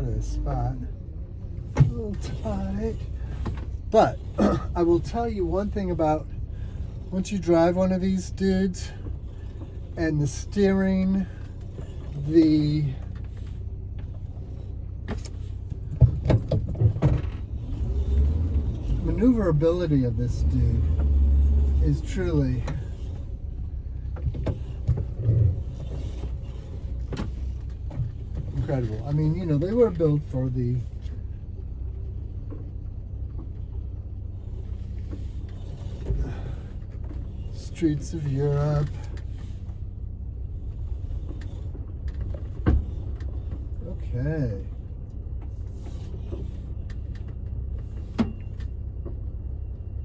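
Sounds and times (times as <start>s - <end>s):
van engine running at low speed: 0.0s - 50.0s
sharp clicks and knocks: 15.0s - 19.0s.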